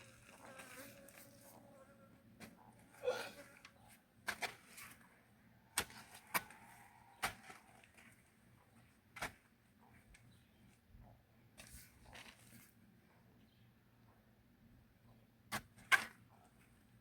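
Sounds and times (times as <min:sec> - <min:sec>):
metal tool striking soil: 0:05.8 - 0:06.6, 0:07.2 - 0:07.7.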